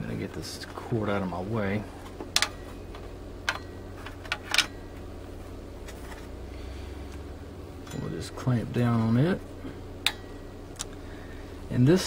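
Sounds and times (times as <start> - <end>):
steady low hum: 0.0 - 12.0
tools clicking and knocking: 2.2 - 4.8.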